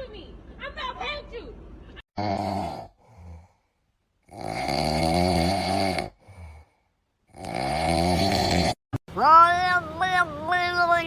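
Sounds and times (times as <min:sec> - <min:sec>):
pet snoring: 0:04.3 - 0:06.6, 0:07.3 - 0:08.8.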